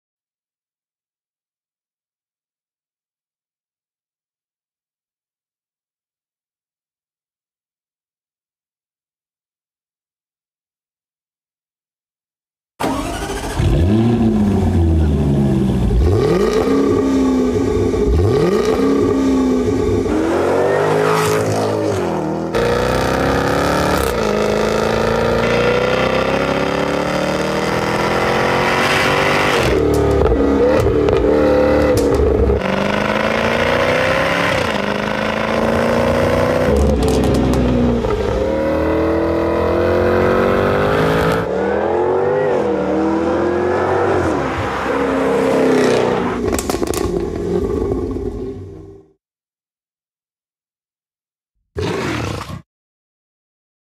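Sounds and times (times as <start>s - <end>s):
car engine accelerating: 12.8s - 49.1s.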